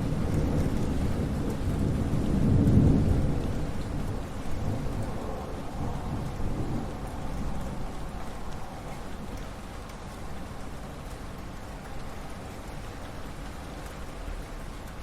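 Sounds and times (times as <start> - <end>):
thunder rumbling: 0.0 - 9.4
steady rainfall: 0.0 - 15.0.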